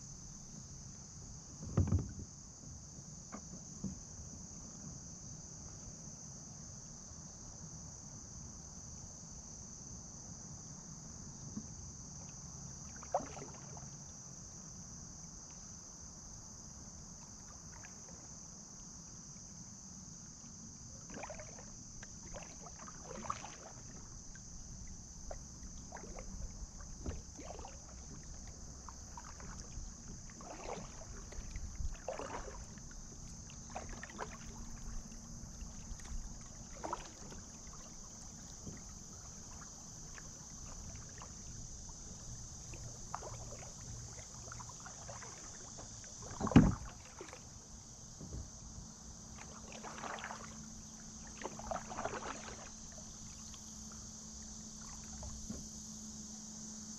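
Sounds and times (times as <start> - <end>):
paddle strokes splashing water: 12.2 - 14.0, 17.1 - 18.3, 20.9 - 55.7.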